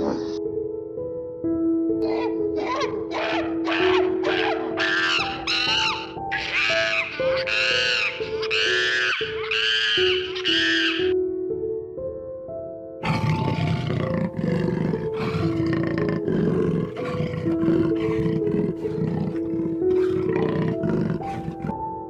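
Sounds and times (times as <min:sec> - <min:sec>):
background music with simple melody: 0:00.0 - 0:22.0
animal rasping calls: 0:02.0 - 0:11.1, 0:13.0 - 0:21.8.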